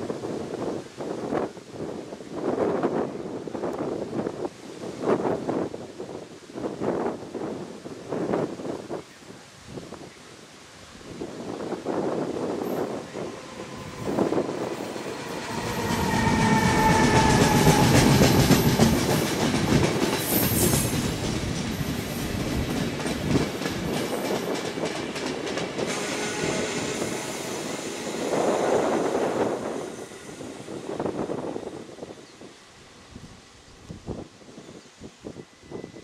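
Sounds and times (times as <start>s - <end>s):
electric locomotive whine: 11.2s - 36.0s
train wheels clattering on rails: 12.6s - 31.4s.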